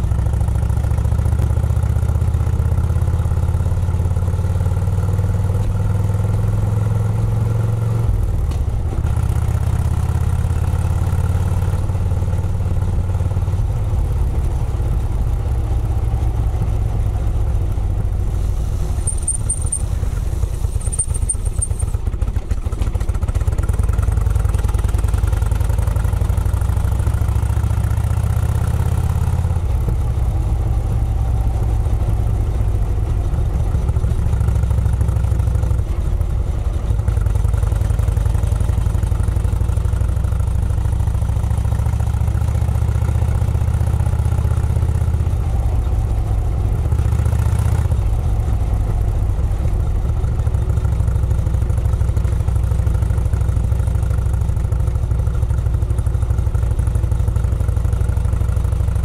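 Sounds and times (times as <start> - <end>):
vintage car engine running: 0.0 - 59.0.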